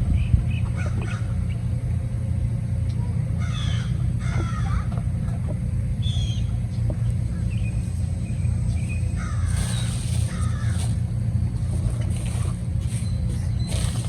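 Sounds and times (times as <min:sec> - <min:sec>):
steady low rumble: 0:00.0 - 0:14.0
waterfowl honking: 0:09.2 - 0:11.0.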